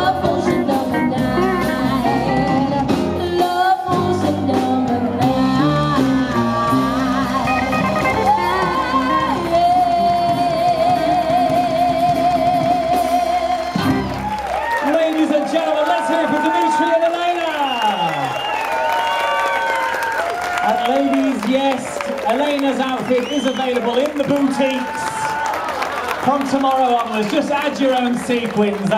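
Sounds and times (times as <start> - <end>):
person singing: 0.0 - 14.1
rock and roll music: 0.0 - 14.3
guitar: 0.0 - 14.5.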